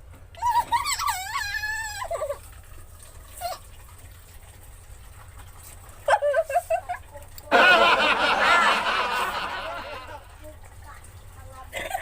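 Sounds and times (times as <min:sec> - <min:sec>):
woman squealing: 0:00.4 - 0:02.4
women squealing laughter: 0:00.4 - 0:02.4, 0:06.1 - 0:10.2.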